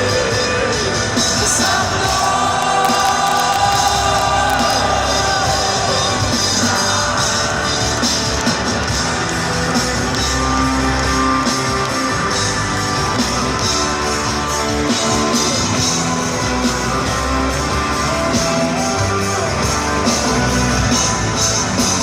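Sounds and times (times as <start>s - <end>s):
voices singing: 0.0s - 8.0s
live rock band: 0.0s - 22.0s.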